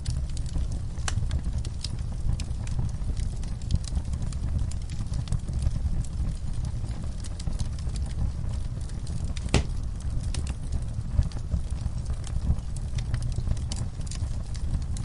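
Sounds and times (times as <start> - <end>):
wood fire rumbling and crackling: 0.0 - 15.0
loud fire pop: 9.4 - 9.9.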